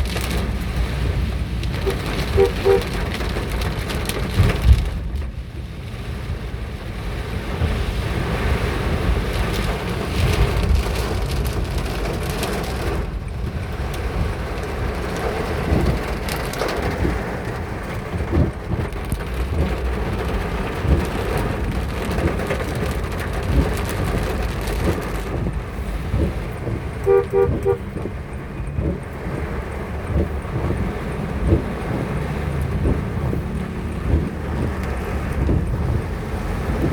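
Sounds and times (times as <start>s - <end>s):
heavy rain and hail: 0.0s - 36.9s
wind buffeting microphone: 9.0s - 36.9s.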